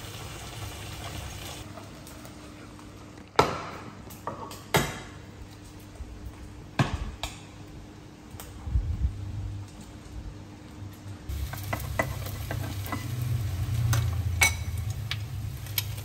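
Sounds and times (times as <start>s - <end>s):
pot and utensils clanking: 11.5s - 13.2s, 13.9s - 14.9s.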